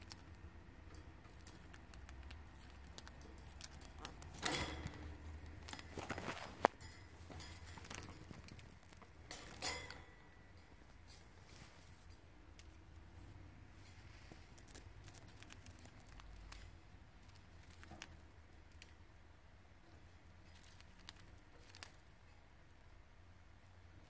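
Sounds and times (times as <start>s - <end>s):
bird nibbling seeds: 0.0s - 11.3s, 13.8s - 19.1s, 20.3s - 22.3s.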